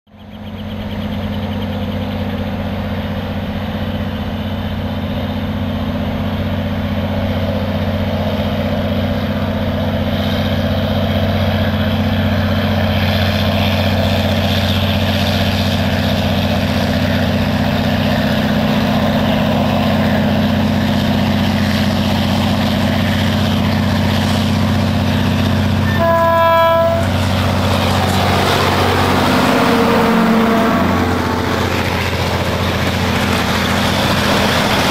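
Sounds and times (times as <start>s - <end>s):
locomotive engine drone: 0.1s - 34.9s
rumble and rattle of rolling train: 0.1s - 34.9s
locomotive horn blast: 25.7s - 31.7s.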